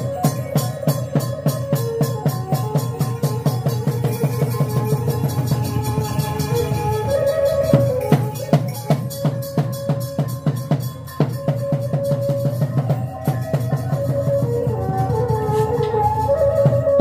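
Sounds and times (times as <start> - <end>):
drums beating steady rhythm: 0.0 - 17.0
held melodic line: 0.0 - 17.0.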